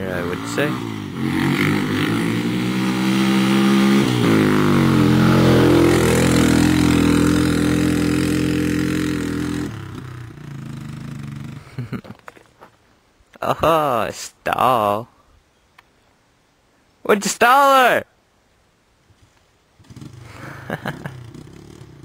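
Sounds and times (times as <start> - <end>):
off-road vehicle engine running: 0.0 - 11.9, 19.8 - 22.0.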